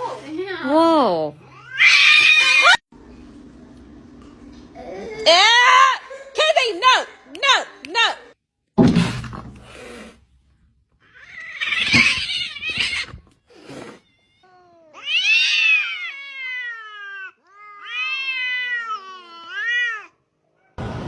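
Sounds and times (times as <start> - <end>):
cat yowling: 1.4 - 2.8, 11.0 - 13.2, 14.0 - 20.2.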